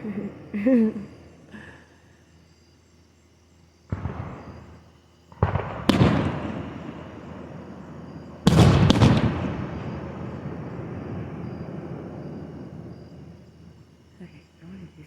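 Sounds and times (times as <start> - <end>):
fireworks bangs: 3.9 - 14.0.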